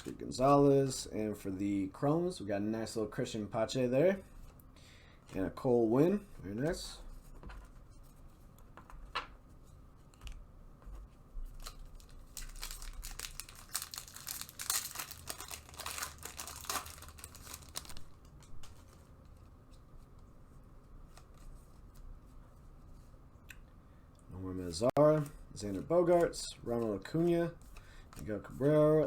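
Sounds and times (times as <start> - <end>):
plastic wrapper tearing and crinkling: 11.5 - 18.9.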